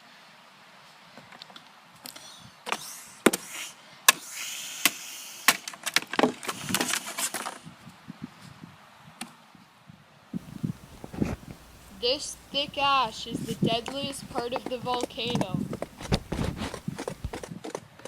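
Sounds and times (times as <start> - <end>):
short hiss: 10.4 - 17.4
sharp knocks and clicks: 10.4 - 17.5.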